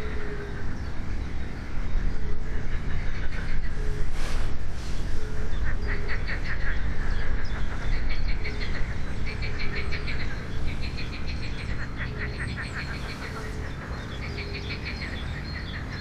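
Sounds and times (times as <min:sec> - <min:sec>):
songbirds chirping: 0:00.0 - 0:16.0.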